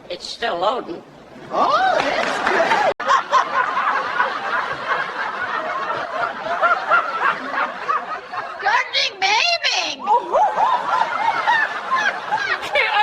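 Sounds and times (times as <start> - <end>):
people laughing: 1.5 - 8.9, 10.0 - 13.0.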